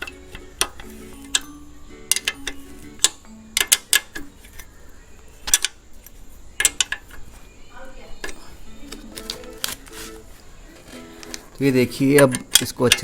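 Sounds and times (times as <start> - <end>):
soft background music: 0.0 - 5.7, 7.2 - 13.0
metallic clicks of a hand tool: 12.2 - 13.0.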